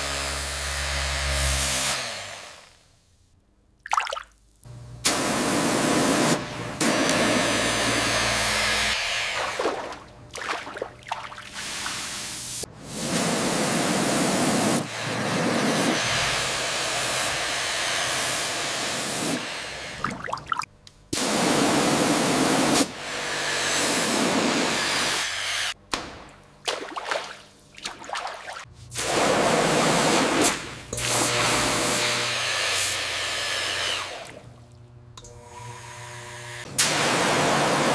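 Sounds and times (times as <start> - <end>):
water spray hissing on metal: 11.5 - 16.0.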